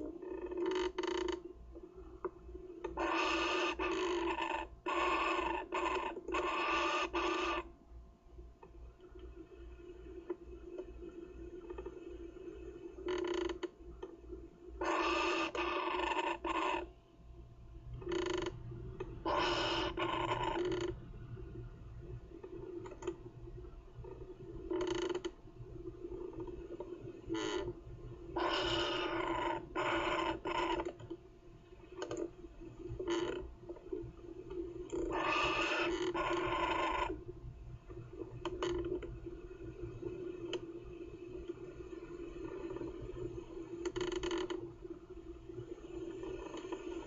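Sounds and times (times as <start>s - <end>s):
steady low hum: 16.8s - 47.0s.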